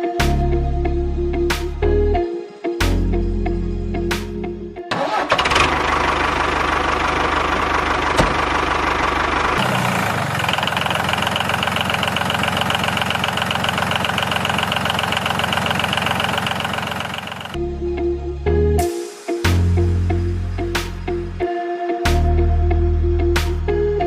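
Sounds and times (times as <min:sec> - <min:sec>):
mini tractor motor rattling: 0:04.9 - 0:17.6.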